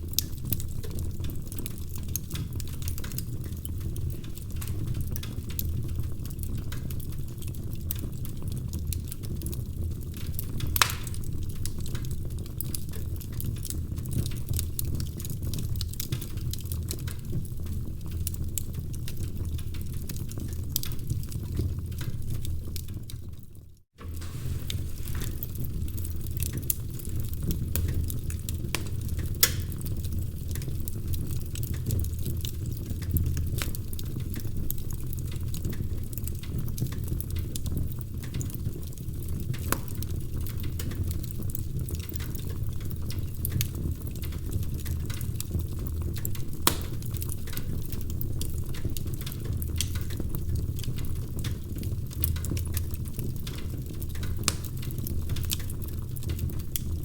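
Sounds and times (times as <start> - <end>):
fire pops and snaps: 0.0 - 57.0
fireplace fire rumbling: 0.0 - 57.0.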